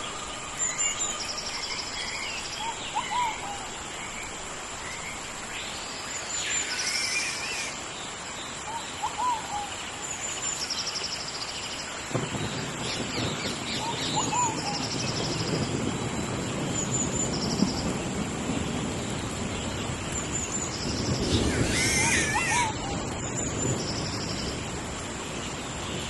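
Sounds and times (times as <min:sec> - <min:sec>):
steady rain: 0:00.0 - 0:26.0
birds whistling and trilling: 0:06.2 - 0:07.8, 0:12.1 - 0:15.8, 0:19.6 - 0:24.6.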